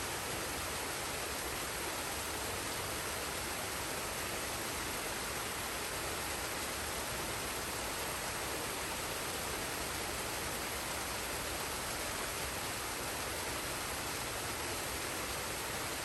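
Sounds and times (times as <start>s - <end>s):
waterfall pouring and rushing: 0.0s - 16.0s.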